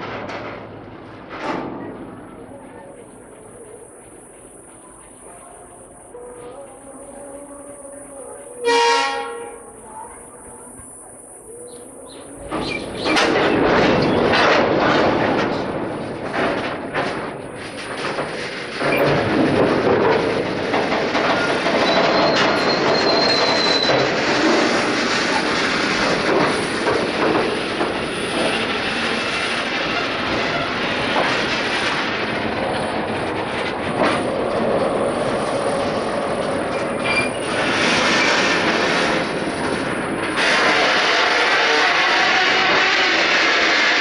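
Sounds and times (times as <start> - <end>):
freight train wheels rumbling: 0.0 - 44.0
clicks over rail joints: 12.4 - 40.9
high wheel squeal: 21.4 - 24.1, 36.7 - 38.4.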